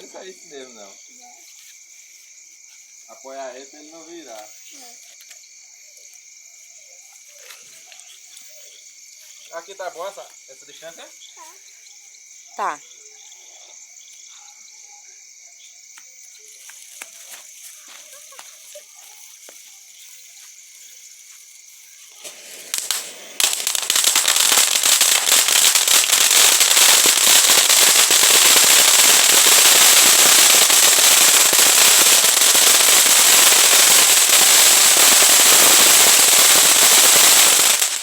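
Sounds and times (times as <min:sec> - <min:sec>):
firework fountain hissing and crackling: 0:21.3 - 0:38.0.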